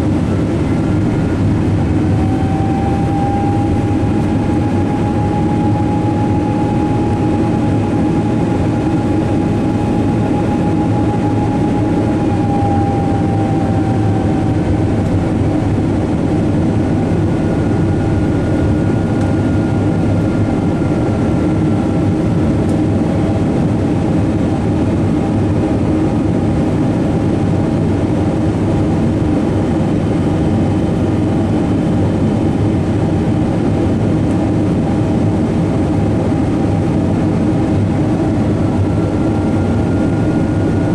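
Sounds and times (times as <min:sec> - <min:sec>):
faint engine tones: 0:00.0 - 0:23.4, 0:37.6 - 0:40.9
airliner cabin jet engine roar: 0:00.0 - 0:40.9.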